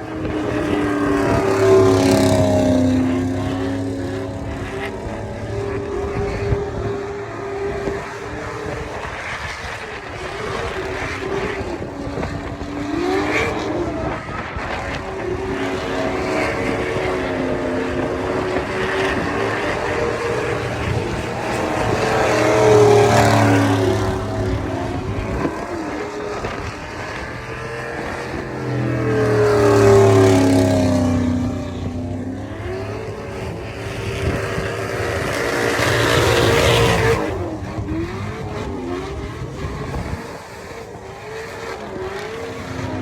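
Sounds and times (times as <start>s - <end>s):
truck engine revving: 10.4s - 43.0s.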